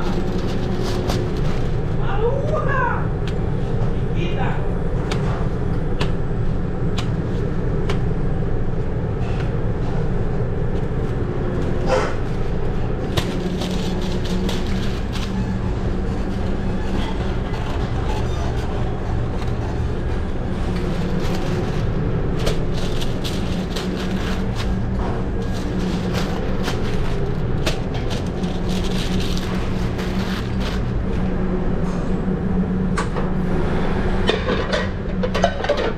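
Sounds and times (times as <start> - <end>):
kitchen ventilation rumble: 0.0 - 35.9
pans and utensils clanking: 34.3 - 35.9.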